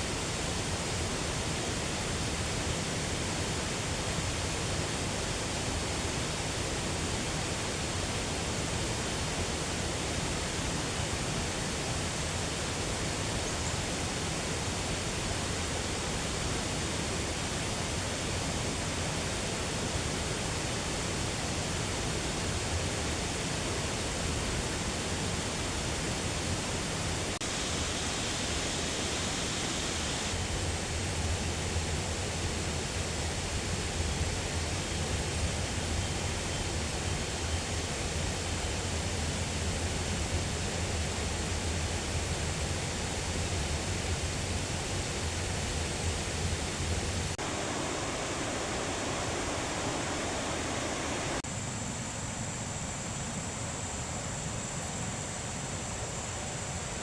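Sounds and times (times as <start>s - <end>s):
steady rushing noise: 44.3s - 51.9s.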